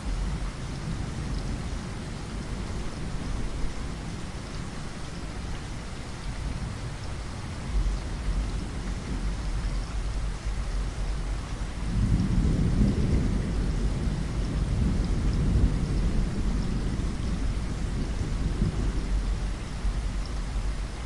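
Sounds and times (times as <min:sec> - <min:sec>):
rain on a window pane: 0:00.0 - 0:21.0
thunder rumbling: 0:10.9 - 0:21.0.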